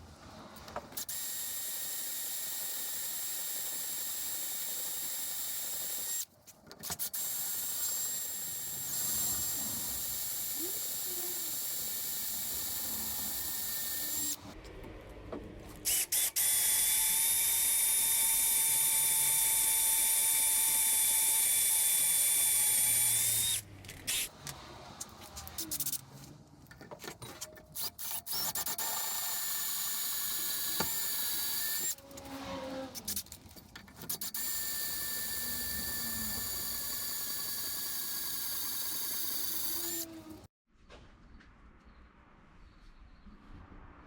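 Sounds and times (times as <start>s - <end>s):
electric drill whining: 1.0s - 6.3s, 6.9s - 14.4s, 15.9s - 24.3s, 27.8s - 33.3s, 34.1s - 40.5s
clicks and handling noise: 23.8s - 28.3s, 33.0s - 34.3s.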